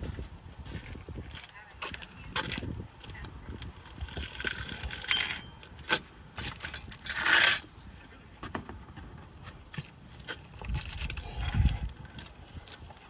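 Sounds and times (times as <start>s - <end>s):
wrench scraping metal: 4.8s - 7.7s
metallic clink: 4.9s - 7.7s.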